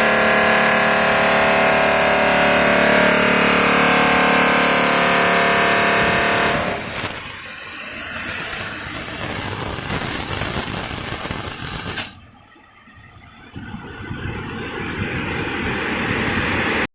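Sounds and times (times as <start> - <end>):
polishing machine wheels rushing: 0.0 - 12.2.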